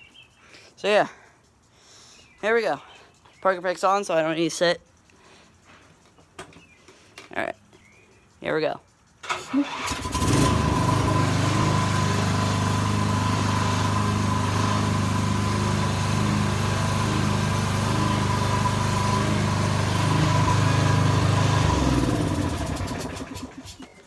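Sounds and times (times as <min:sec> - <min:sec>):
riding mower engine running: 0:09.2 - 0:23.9.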